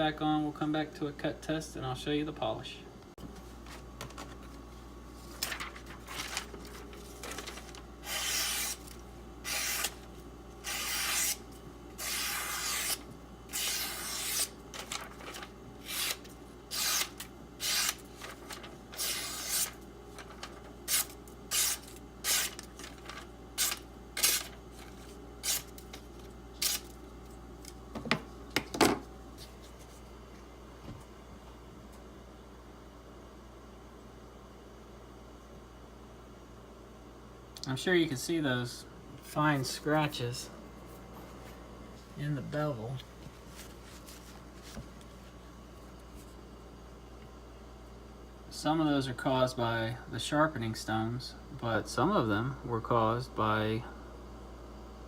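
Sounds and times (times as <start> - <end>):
tape peeled off knife blade: 8.0 - 10.0, 10.6 - 11.4, 12.0 - 14.9, 15.8 - 18.1, 19.0 - 19.8, 20.9 - 22.9, 23.6 - 24.5, 25.4 - 25.9, 26.6 - 26.9.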